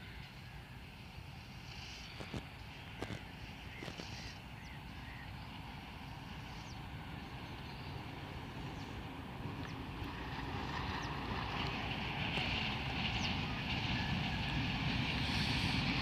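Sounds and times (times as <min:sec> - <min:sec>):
distant train rumble: 0:00.0 - 0:16.0
faint bird chirps: 0:03.4 - 0:05.6.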